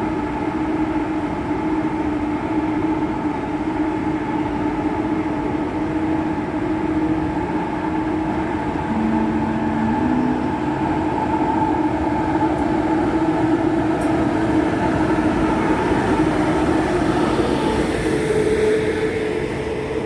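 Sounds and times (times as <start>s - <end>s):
train rumbling: 7.0s - 20.0s
humming tones: 8.8s - 11.8s.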